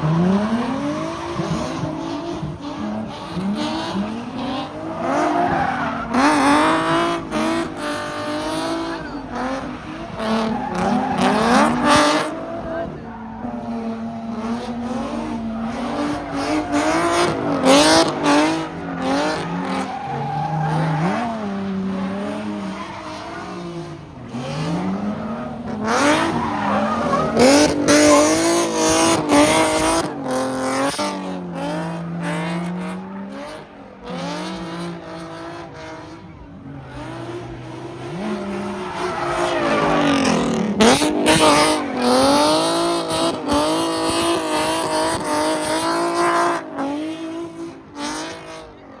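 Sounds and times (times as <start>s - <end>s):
car engines revving: 0.0s - 49.0s
tyres squealing: 24.8s - 30.0s.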